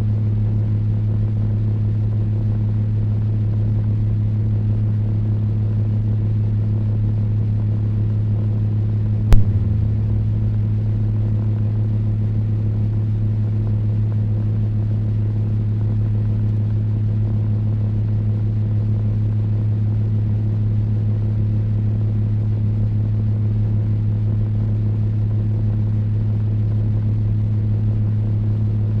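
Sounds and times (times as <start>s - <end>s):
sharp click: 9.3s - 10.2s.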